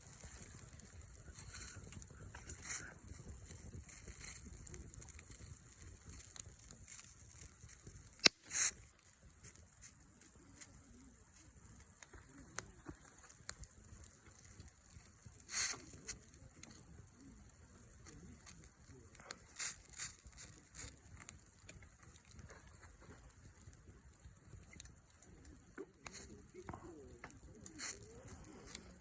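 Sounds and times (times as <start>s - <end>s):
wood fire crackling: 0.0s - 29.0s
sharp pop of fire: 7.9s - 8.9s.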